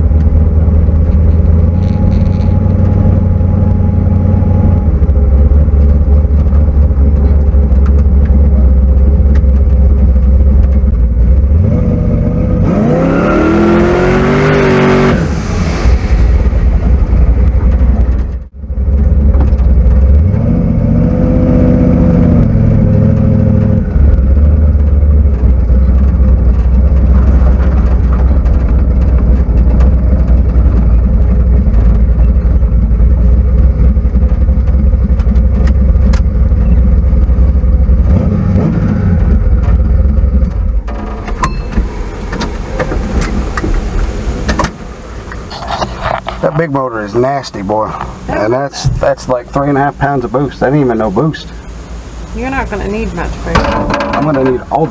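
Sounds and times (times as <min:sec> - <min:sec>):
car engine droning: 0:00.0 - 0:54.9
car engine revving hard: 0:11.4 - 0:32.1, 0:37.1 - 0:40.3.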